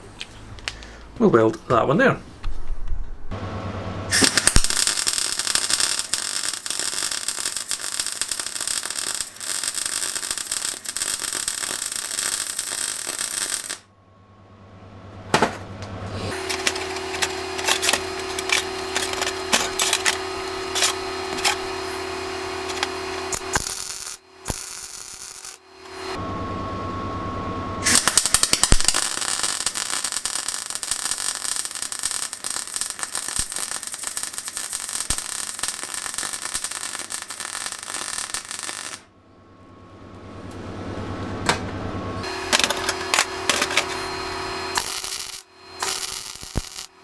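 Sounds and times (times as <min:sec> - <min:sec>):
welding arc crackling: 0:04.1 - 0:13.9, 0:16.2 - 0:26.2, 0:27.8 - 0:39.1, 0:42.2 - 0:47.0
steady hum: 0:10.1 - 0:28.0, 0:37.1 - 0:47.0.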